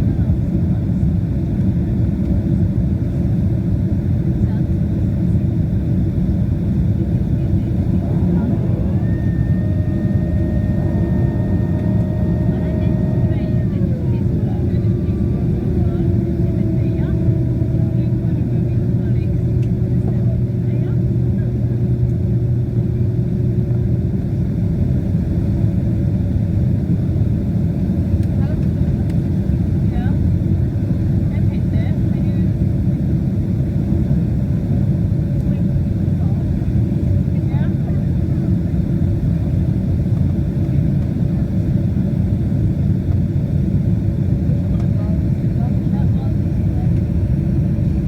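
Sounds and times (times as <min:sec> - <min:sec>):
airliner engines rumbling: 0:00.0 - 0:48.0
faint steady hum: 0:06.4 - 0:20.3.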